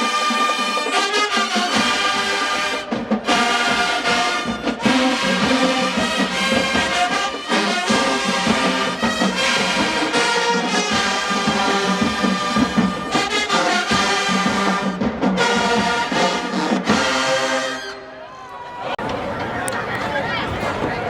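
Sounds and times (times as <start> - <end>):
marching band brass chords: 0.0 - 18.1, 19.0 - 21.0.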